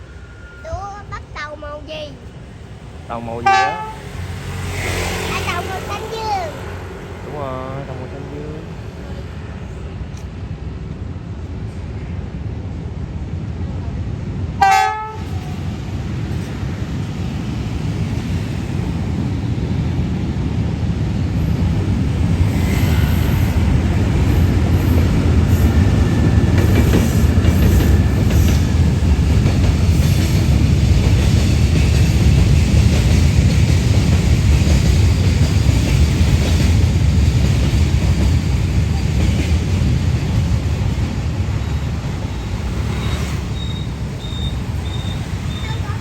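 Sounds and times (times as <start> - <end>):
train rumble: 0.0 - 46.0
train horn blast: 3.4 - 4.5, 14.6 - 15.4.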